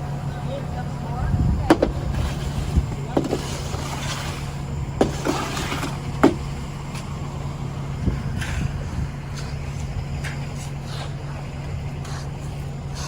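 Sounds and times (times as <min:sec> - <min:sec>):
diesel engine running: 0:00.0 - 0:13.0
sharp knocks: 0:05.0 - 0:06.6.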